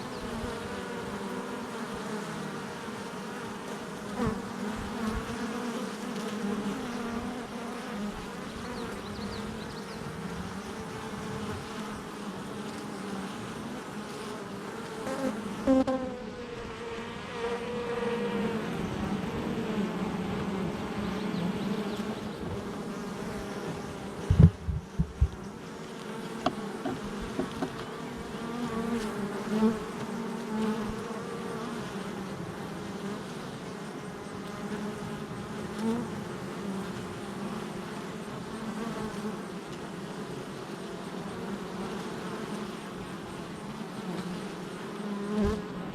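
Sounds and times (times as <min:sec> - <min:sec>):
bees humming at a hive: 0:00.0 - 0:45.9
single bee droning: 0:00.0 - 0:45.9
sharp thumps: 0:22.4 - 0:22.9, 0:23.6 - 0:25.5, 0:26.4 - 0:28.0.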